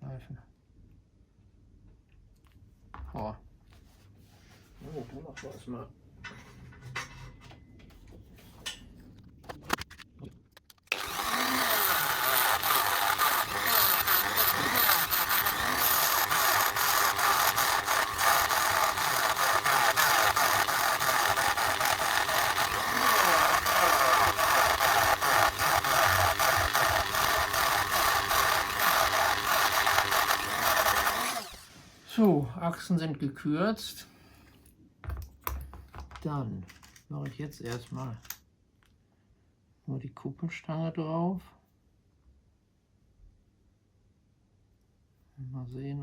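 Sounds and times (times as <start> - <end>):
small power tool grinding metal: 10.9 - 31.8.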